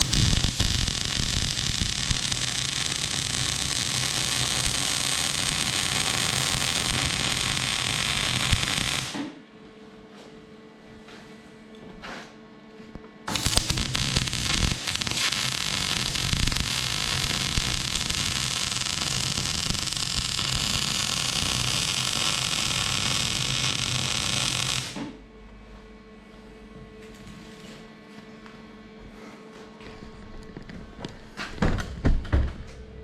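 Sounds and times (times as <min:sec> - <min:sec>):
arc welder crackling hiss: 0:00.0 - 0:09.3, 0:13.3 - 0:25.1
faint hum: 0:12.6 - 0:31.4.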